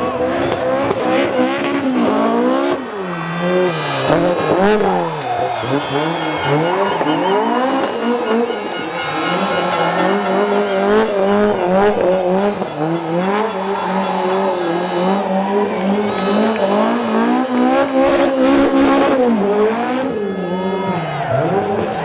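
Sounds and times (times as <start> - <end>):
rally car engine revving: 0.0 - 22.0
tyres squealing: 2.6 - 19.9.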